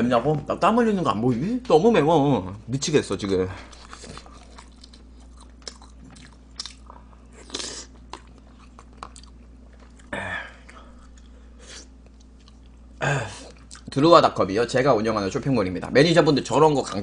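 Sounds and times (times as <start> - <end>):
chewing with wet clicks and smacks: 3.7 - 11.4, 12.0 - 12.8, 13.5 - 13.9.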